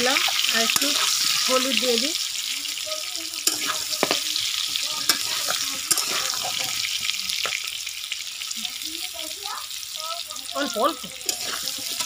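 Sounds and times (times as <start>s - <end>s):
food sizzling in oil: 0.0s - 12.0s
spatula scraping a pan: 0.2s - 1.8s, 3.4s - 7.6s, 11.1s - 12.0s
spatula clicking on pan: 3.4s - 4.2s, 5.0s - 6.7s, 11.2s - 12.0s.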